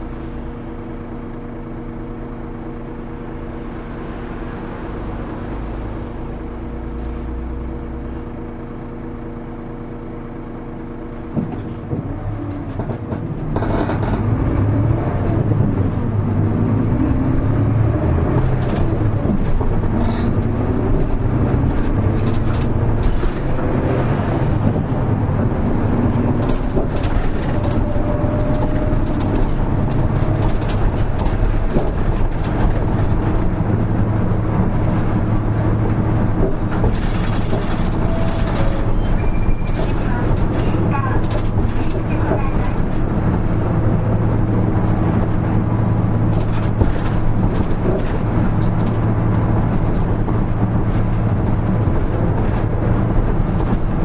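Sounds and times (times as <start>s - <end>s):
bus diesel engine: 0.0s - 54.0s
road noise: 0.0s - 54.0s
rattles: 11.2s - 54.0s.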